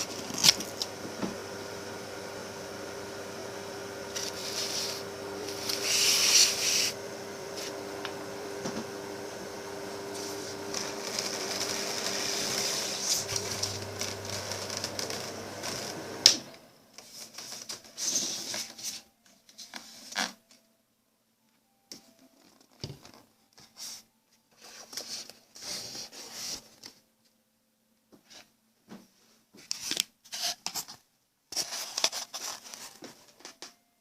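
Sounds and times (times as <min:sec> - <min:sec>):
small motor humming: 0:00.0 - 0:16.7
scraping and rubbing: 0:03.8 - 0:09.0, 0:09.9 - 0:16.2.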